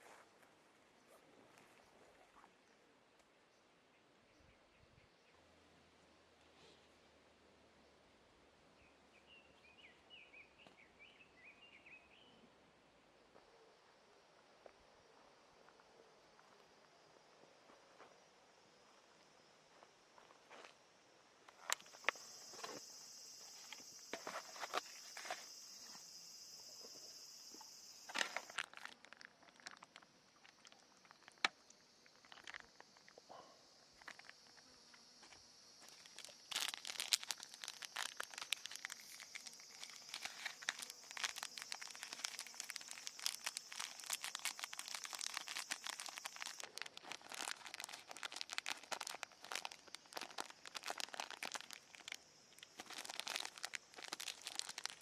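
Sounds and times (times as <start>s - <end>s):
plastic crinkling and rustling: 21.6s - 25.5s, 28.1s - 31.5s, 35.8s - 55.0s.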